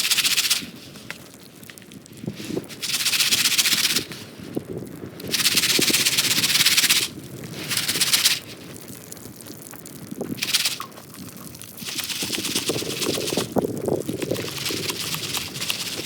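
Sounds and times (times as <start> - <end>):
popcorn pan rattling: 0.0 - 0.7, 2.8 - 4.1, 5.3 - 8.5, 10.3 - 16.0.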